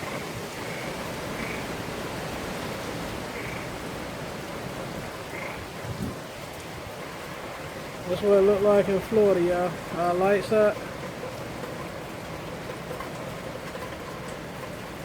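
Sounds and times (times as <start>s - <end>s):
frog calling: 0.0s - 2.0s, 2.9s - 3.9s, 5.0s - 5.8s
wind and rain rushing: 0.0s - 15.0s.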